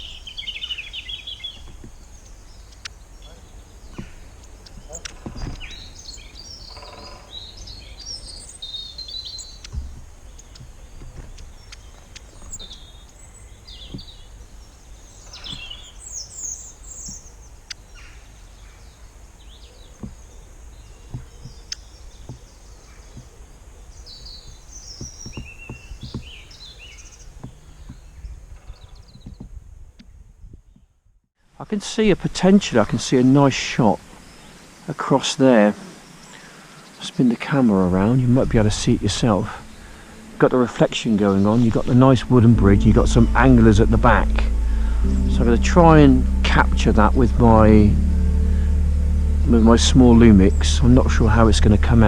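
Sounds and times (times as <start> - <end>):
steady low rumble: 0.0 - 22.2, 37.9 - 52.0
wild birds chirping and singing: 0.0 - 31.0, 32.0 - 52.0.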